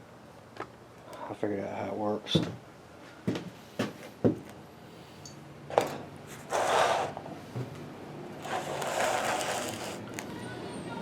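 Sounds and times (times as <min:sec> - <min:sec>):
scraping rustle: 0:06.3 - 0:07.2, 0:08.4 - 0:10.3.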